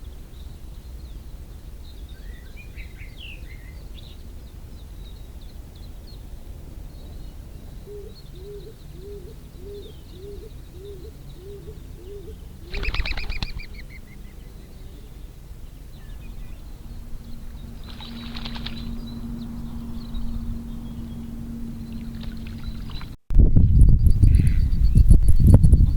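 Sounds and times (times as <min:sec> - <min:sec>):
low outdoor rumble: 0:00.0 - 0:25.9
low repeated bird notes: 0:00.0 - 0:25.9
steady low hum: 0:00.0 - 0:25.9
harsh bird call: 0:07.9 - 0:14.1
high bird chirps: 0:07.9 - 0:14.3, 0:23.7 - 0:25.9.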